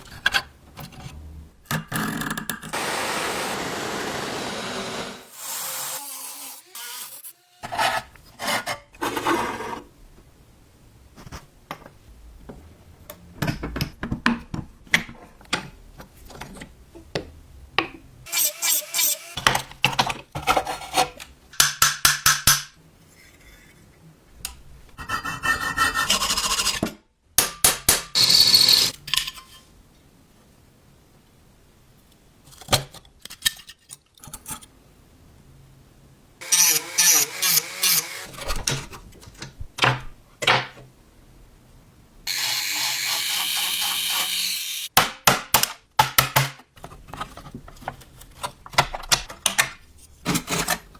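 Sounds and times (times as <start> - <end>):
tool scraping metal: 28.2 - 29.6.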